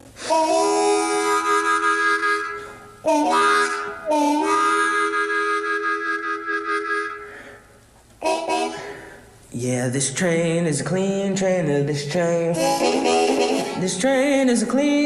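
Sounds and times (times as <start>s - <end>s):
harmonica playing chords: 0.0s - 9.4s, 12.5s - 14.0s.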